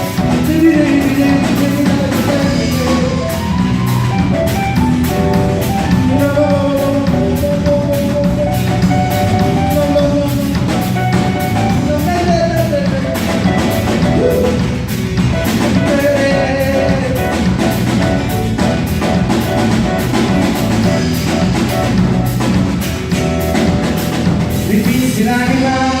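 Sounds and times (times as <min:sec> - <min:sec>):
drum kit beat: 0:00.0 - 0:26.0
live reggae band playing: 0:00.0 - 0:26.0.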